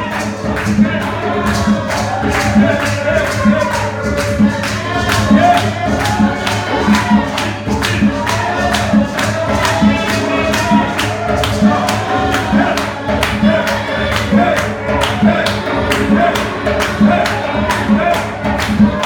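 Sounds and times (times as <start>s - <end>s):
gospel singing voices: 0.0s - 19.0s
low drum beat: 0.0s - 19.0s.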